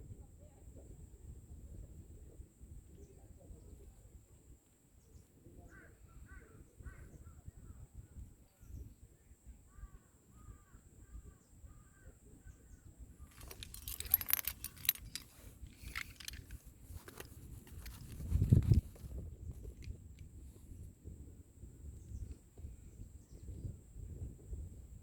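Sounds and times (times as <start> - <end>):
climbing gear jangling and clinking: 13.3 - 20.0.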